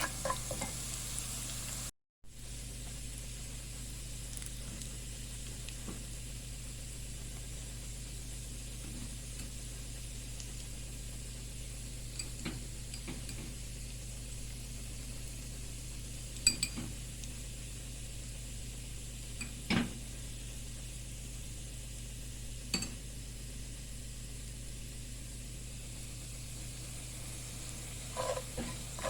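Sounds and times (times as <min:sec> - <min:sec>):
food sizzling in a pan: 0:00.0 - 0:29.0
utensil clicking against pan: 0:27.6 - 0:29.0.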